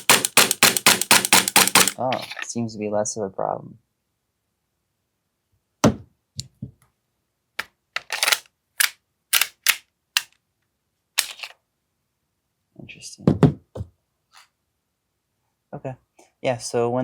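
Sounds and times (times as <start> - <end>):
airsoft pistol shots: 0.0 - 2.0.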